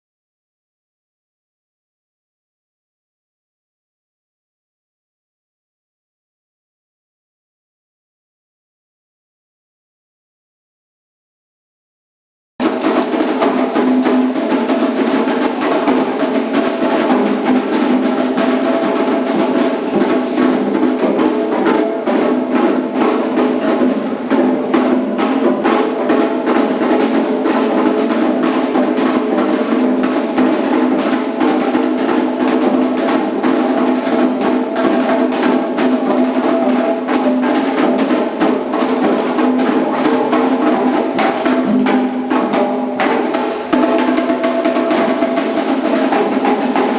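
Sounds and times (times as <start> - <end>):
hand drums playing fast rhythm: 12.6 - 46.9.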